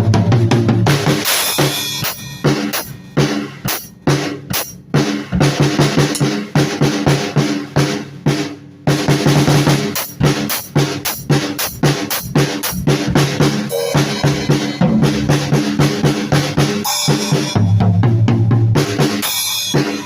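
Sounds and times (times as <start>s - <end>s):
kick and snare drum strokes: 0.0s - 20.0s
cymbal crash: 1.2s - 3.9s, 13.3s - 17.8s.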